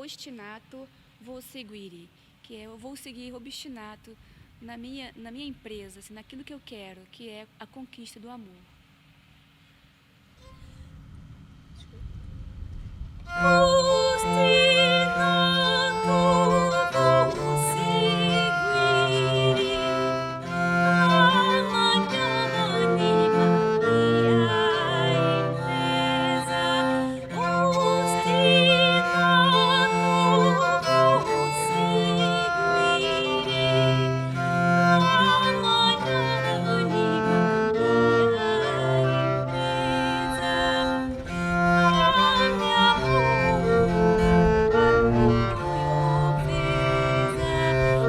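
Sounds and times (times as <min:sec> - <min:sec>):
bowed string instrument: 0:13.2 - 0:48.0
person singing with vibrato: 0:13.4 - 0:44.4, 0:45.1 - 0:48.0.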